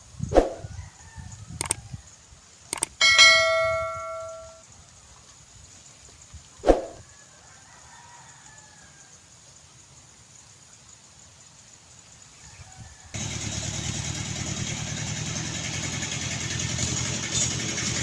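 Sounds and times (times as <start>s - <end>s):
light clicks: 1.6s - 1.8s, 2.7s - 3.0s
metal object struck ringing: 3.0s - 4.6s.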